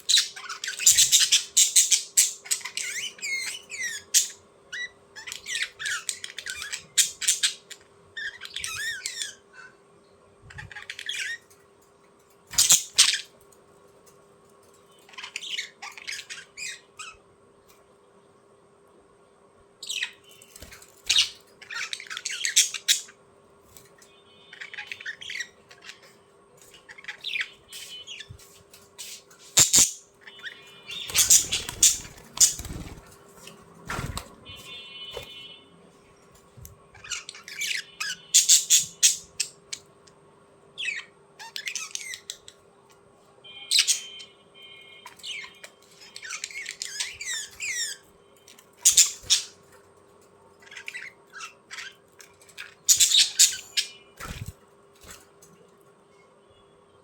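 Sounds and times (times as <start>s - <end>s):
birds squawking and chirping: 0.0s - 11.6s, 12.5s - 13.5s, 14.6s - 17.3s, 19.8s - 35.6s, 36.2s - 40.0s, 40.7s - 42.7s, 43.5s - 55.5s.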